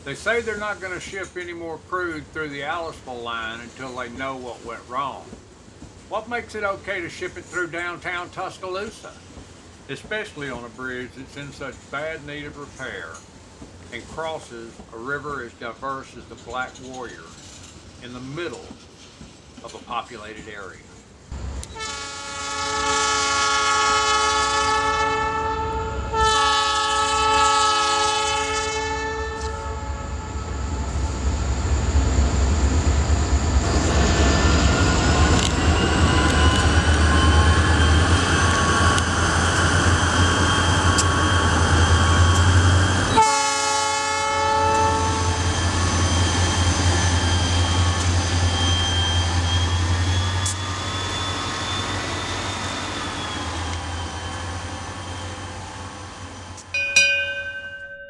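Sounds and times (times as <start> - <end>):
train rumbling and clattering past: 0.0 - 21.8, 23.2 - 56.7
locomotive air horn: 21.6 - 30.7, 42.4 - 45.6.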